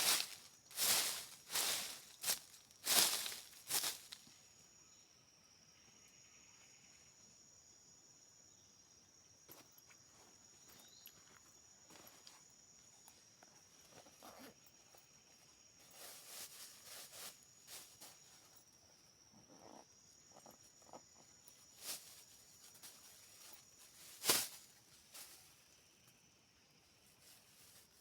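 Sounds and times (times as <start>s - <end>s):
high-pitched insect trill: 0.0s - 28.0s.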